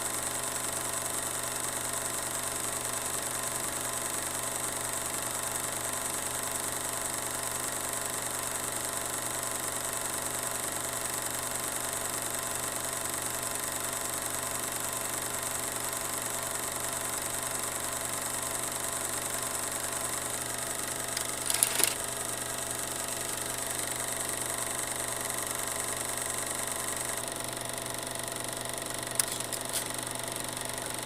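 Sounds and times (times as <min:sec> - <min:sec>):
mechanical hum: 0:14.1 - 0:31.0.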